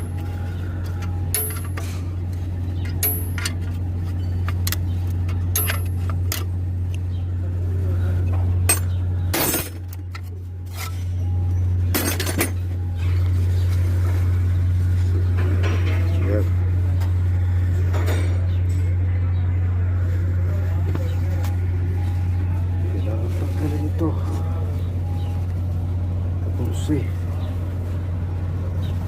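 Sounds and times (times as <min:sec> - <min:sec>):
metal tools clinking: 0:00.0 - 0:02.1, 0:02.8 - 0:06.5, 0:08.7 - 0:11.3, 0:11.9 - 0:12.7
steady low hum: 0:00.0 - 0:29.0.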